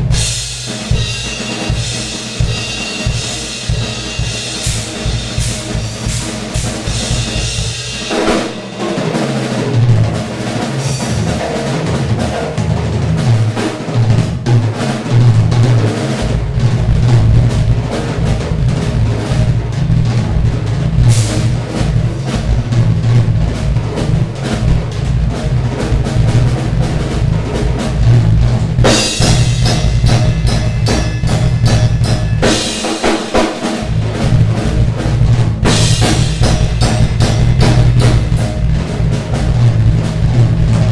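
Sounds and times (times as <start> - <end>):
crashing cymbals: 0.0 - 9.8, 28.8 - 39.5
bass drum: 0.0 - 40.9
snare and tom drum rolls: 0.0 - 40.9.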